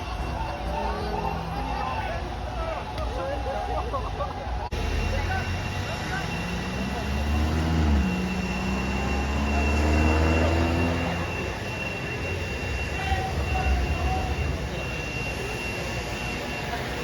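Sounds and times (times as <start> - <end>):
thin high whine: 4.3 - 17.0
vehicle engine accelerating: 4.7 - 12.6.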